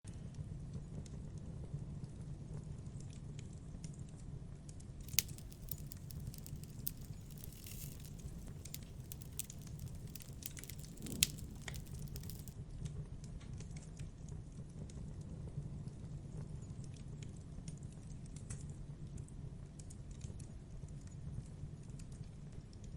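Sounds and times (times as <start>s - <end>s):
campfire crackling: 5.1s - 12.5s.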